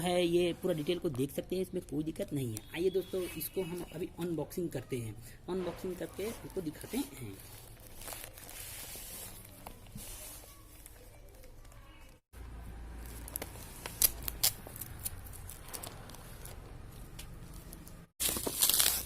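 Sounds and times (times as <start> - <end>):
cardboard packaging rustling: 6.0 - 11.6, 13.0 - 19.0.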